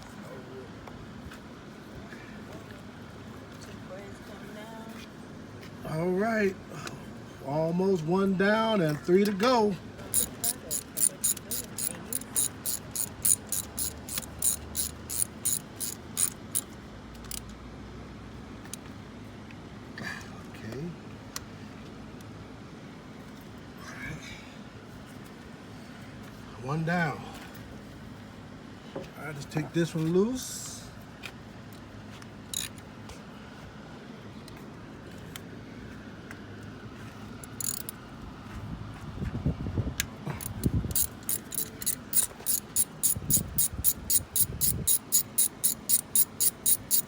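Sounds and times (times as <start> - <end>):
steady low hum: 9.8 - 16.7, 40.2 - 47.0
ratchet wrench clicking: 10.1 - 17.5, 32.5 - 32.8, 37.5 - 37.9, 40.4 - 47.0.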